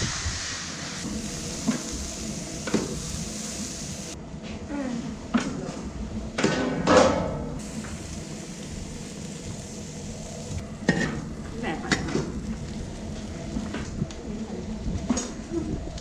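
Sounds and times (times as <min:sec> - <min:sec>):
food sizzling in a pan: 0:00.0 - 0:04.2, 0:07.6 - 0:13.8.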